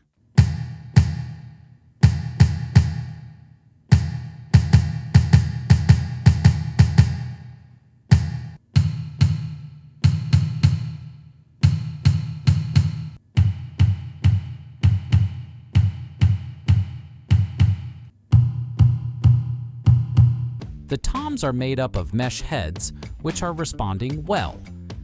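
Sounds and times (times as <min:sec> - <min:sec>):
electronic kick drum hits: 0:11.7 - 0:25.0.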